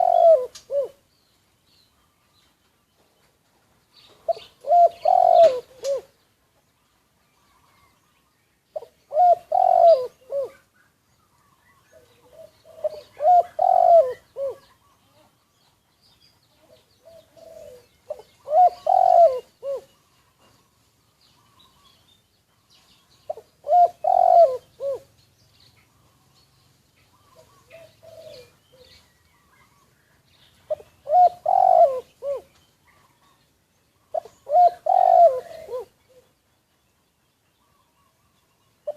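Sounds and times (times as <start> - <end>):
doves cooing: 0.0 - 1.0, 4.1 - 6.2, 8.8 - 10.7, 11.4 - 15.4, 16.6 - 20.6, 23.3 - 25.2, 27.1 - 29.8, 30.6 - 33.4, 34.0 - 36.4.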